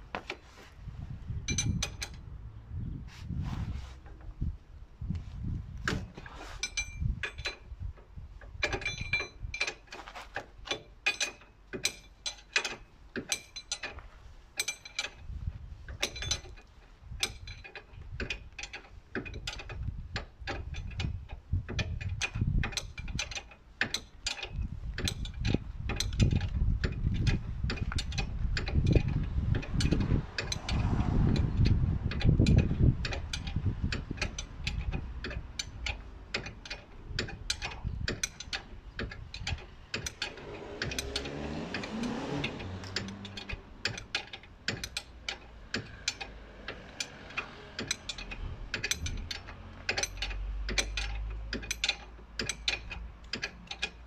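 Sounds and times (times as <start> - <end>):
metal handling rumble: 0.0 - 54.0
ratchet wrench clicking: 15.9 - 54.0.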